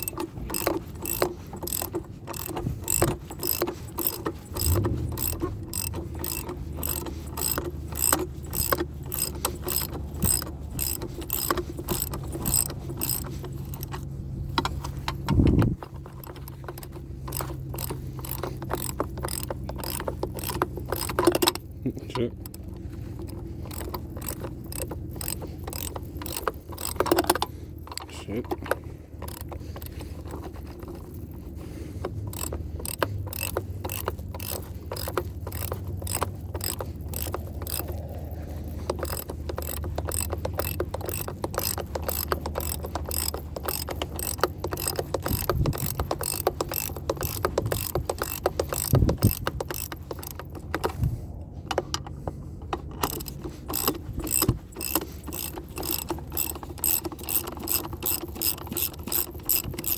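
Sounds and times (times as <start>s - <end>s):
hand ratchet clicking: 0.0s - 59.9s.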